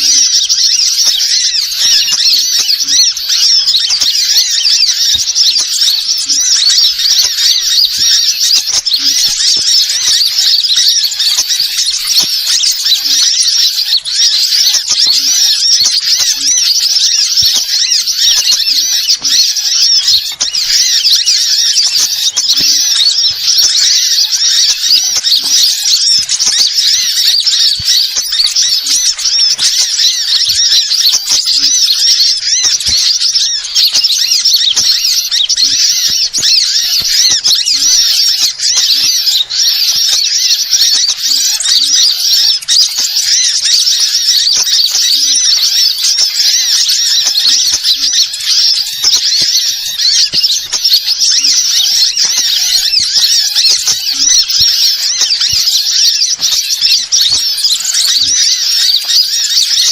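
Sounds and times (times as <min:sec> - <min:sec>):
birds chirping and twittering: 0:00.0 - 0:59.9.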